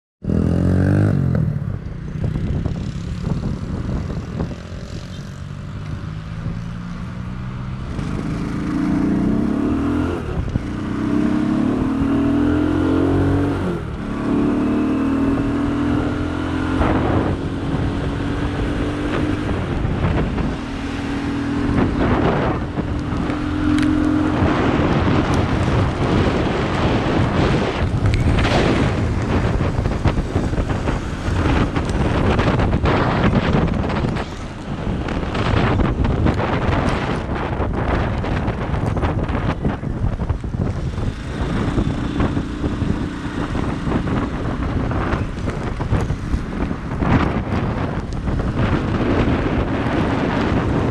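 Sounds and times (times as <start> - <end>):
vehicle engine changing gears: 0.3 - 50.9
rain and tyres on wet road: 22.0 - 50.9.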